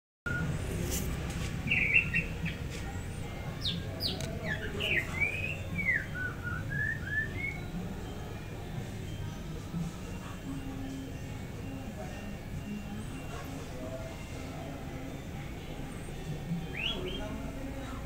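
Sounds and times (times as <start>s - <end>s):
small bird chirping: 1.6s - 7.8s, 16.6s - 17.5s.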